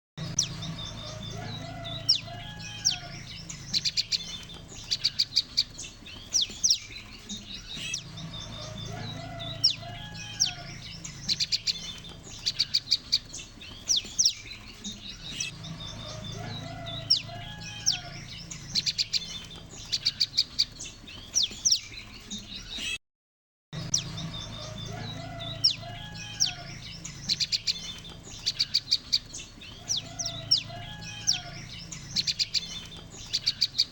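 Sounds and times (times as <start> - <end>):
steady low hum: 0.2 - 13.7, 14.3 - 19.8
birds chirping in chorus: 0.2 - 23.0, 23.8 - 33.9.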